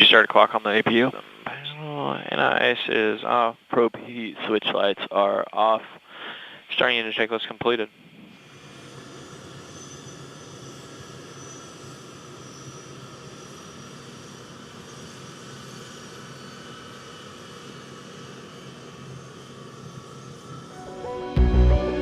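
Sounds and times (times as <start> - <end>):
high turbine whine: 0.0 - 22.0
jet engines roaring: 8.3 - 22.0.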